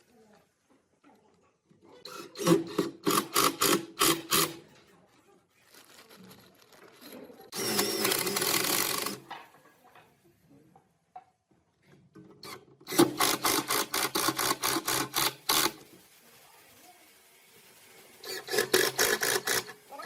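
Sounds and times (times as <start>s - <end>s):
power tool burst: 2.1s - 4.6s, 7.5s - 9.2s, 12.4s - 16.0s, 17.2s - 20.0s
woodworking tool strokes: 12.9s - 20.0s.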